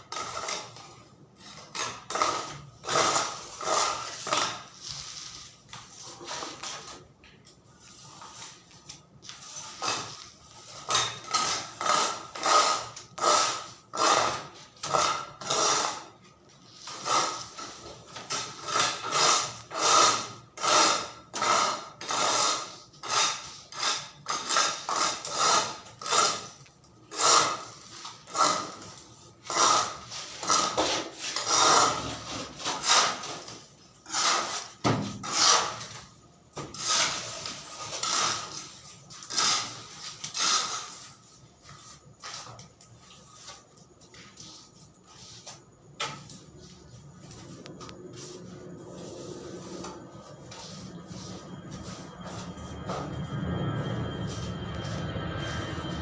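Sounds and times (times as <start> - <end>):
hand tool scraping on wood: 1.4 - 6.8, 9.3 - 16.2, 16.8 - 36.0, 36.7 - 42.6.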